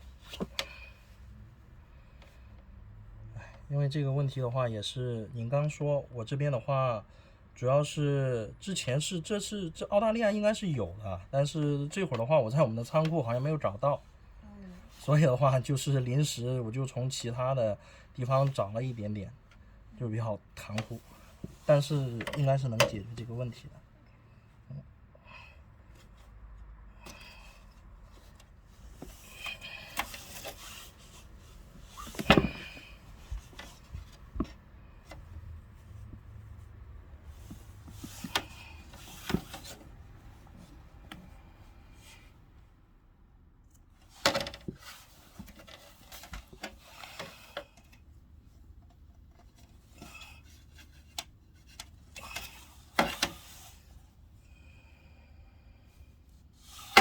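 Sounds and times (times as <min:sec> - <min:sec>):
rubbing and scraping: 0:28.0 - 0:41.0
hands knocking and tapping parts: 0:31.8 - 0:39.9.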